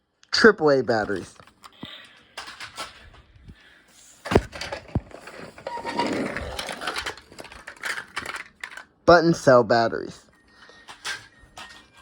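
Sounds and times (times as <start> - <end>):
toy trucks rattling and scraping: 0.9 - 3.2, 4.0 - 9.0, 10.4 - 12.0.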